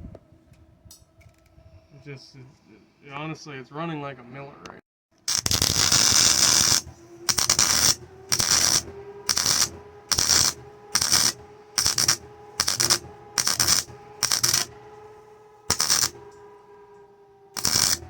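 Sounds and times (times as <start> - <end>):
welding arc crackling: 5.2 - 16.3, 17.6 - 18.0
welding machine humming: 5.2 - 18.0.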